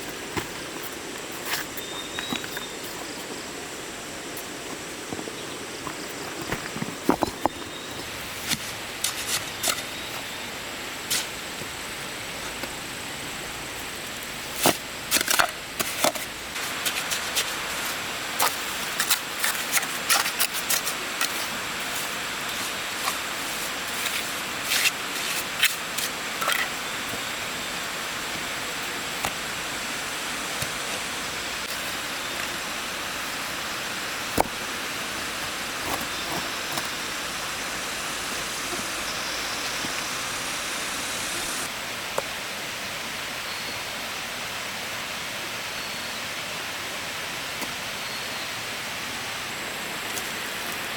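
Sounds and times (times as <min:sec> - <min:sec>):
steady hiss: 0:00.0 - 0:50.9.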